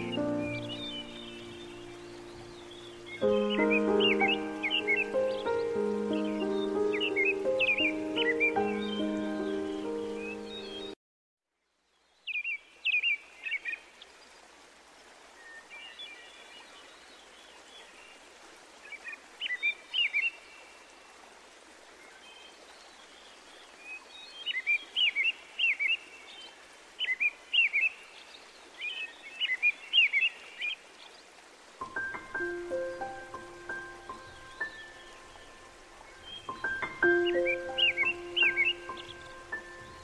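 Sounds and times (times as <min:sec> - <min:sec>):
small birds chirping: 0:00.0 - 0:11.0, 0:21.9 - 0:40.0.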